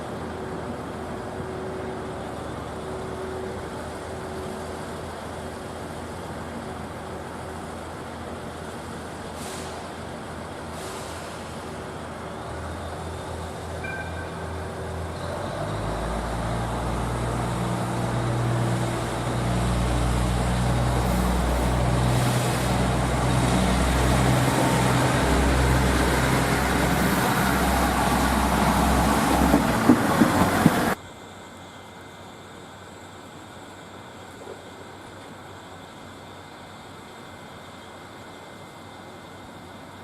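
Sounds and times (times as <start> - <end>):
train running: 0.0 - 31.0.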